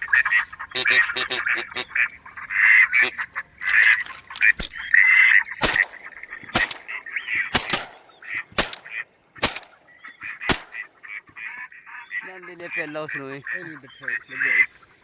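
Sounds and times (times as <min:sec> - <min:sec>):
duck quacking: 0:00.0 - 0:14.9
sharp clicks: 0:05.6 - 0:10.9.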